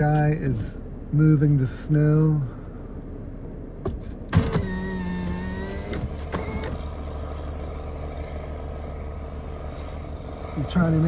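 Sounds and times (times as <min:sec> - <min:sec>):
vehicle engine running: 0:00.0 - 0:11.0
mechanical clunk: 0:03.8 - 0:06.8
mechanical whine: 0:03.8 - 0:11.0.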